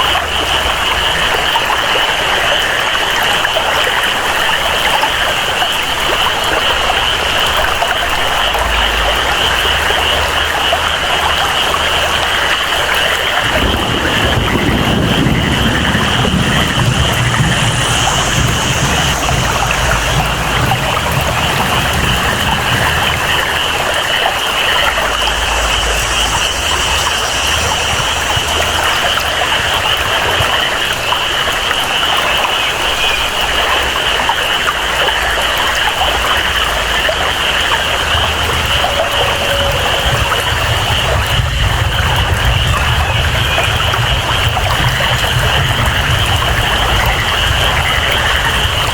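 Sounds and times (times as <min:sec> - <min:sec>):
flowing water: 0:00.0 - 0:48.9
steady rain: 0:00.0 - 0:48.9
high-pitched animal chorus: 0:13.5 - 0:29.8, 0:37.3 - 0:48.9.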